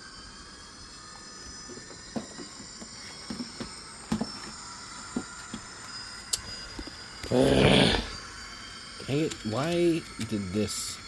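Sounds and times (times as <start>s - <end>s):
faint high whine: 0.0s - 11.0s
model train wheels clicking: 9.1s - 10.9s.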